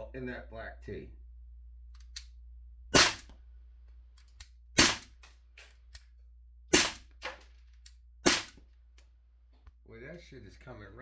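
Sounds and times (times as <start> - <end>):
airsoft gun sharp cracks: 3.0 - 3.4, 4.8 - 5.2, 6.7 - 7.4, 8.2 - 8.6.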